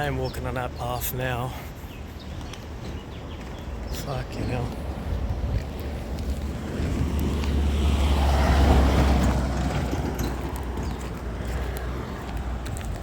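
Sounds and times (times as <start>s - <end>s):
vehicle passing by: 4.4s - 13.0s.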